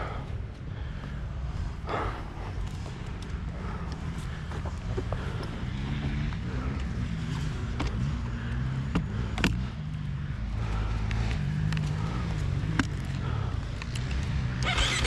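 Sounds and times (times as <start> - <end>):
dirt bike engine at low revs: 0.0 - 15.0.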